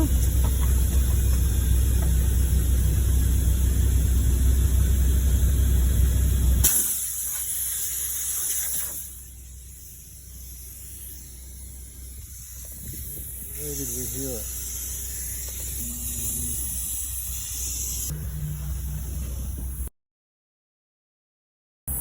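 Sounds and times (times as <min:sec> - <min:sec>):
air hissing from tyre: 0:06.6 - 0:18.1.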